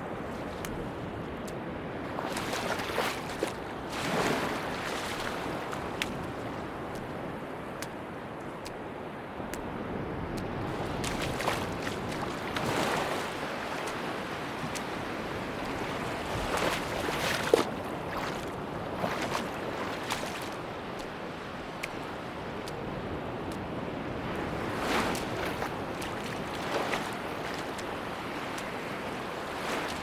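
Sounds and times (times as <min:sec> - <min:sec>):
sea waves washing onto beach: 0:00.0 - 0:30.0
wind: 0:00.0 - 0:30.0.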